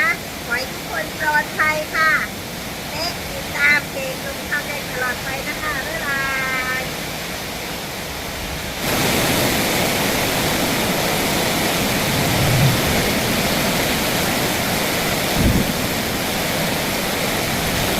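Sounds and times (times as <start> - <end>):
heavy rain pouring: 0.0 - 17.9
low thumps: 11.9 - 13.9.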